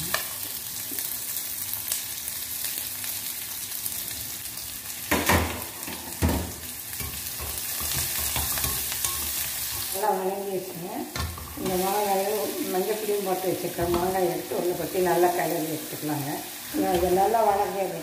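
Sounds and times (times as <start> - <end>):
food sizzling in hot oil: 0.0 - 18.0
pan being stirred: 7.0 - 10.1.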